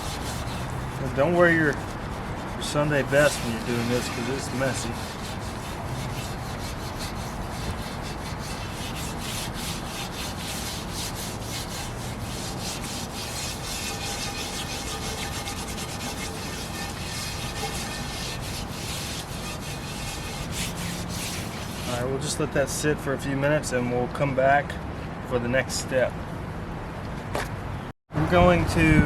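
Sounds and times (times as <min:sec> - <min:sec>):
steel wool scrubbing a skillet: 0:00.0 - 0:22.1.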